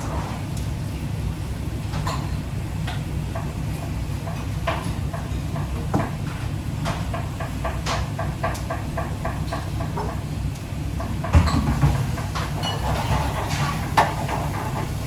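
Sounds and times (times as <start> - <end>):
kitchen taps and clicks: 11.0 - 14.8.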